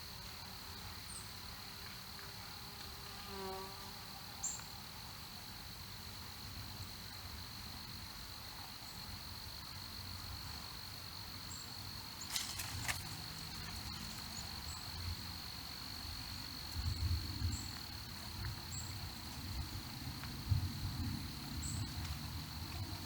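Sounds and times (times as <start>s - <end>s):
insects trilling: 8.8s - 23.0s.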